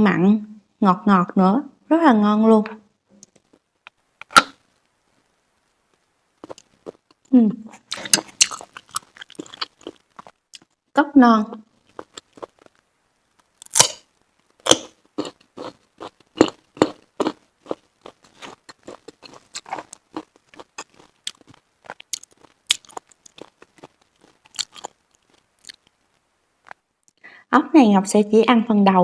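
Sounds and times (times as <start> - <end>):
wet crunchy chewing: 6.4 - 10.7, 11.8 - 12.8, 13.5 - 25.9.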